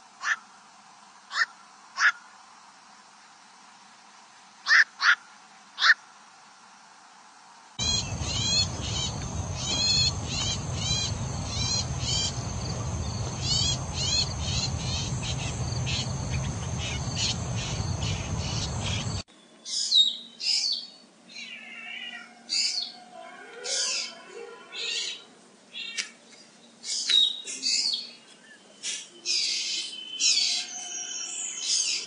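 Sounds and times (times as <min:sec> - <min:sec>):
harsh chattering bird calls: 0:07.8 - 0:19.2
high insect drone: 0:07.8 - 0:19.2
varied bird calls: 0:07.8 - 0:20.8.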